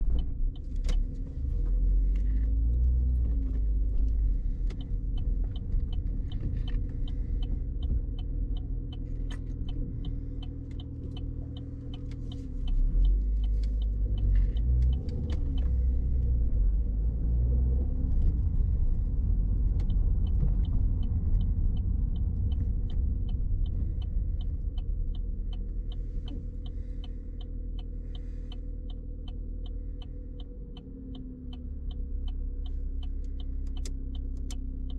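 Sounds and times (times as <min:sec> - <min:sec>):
engine and road rumble: 0:00.0 - 0:34.9
sharp regular ticking: 0:20.6 - 0:34.9.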